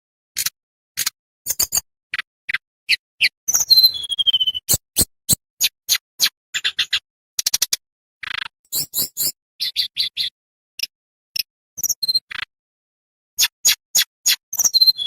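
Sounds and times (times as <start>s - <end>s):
songbird chips and notes: 1.5s - 7.8s, 8.7s - 12.5s, 13.4s - 15.0s.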